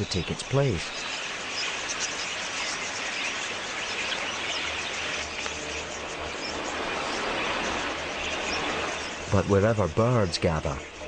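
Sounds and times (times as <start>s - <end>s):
flock of budgerigars chattering: 0.0s - 11.0s.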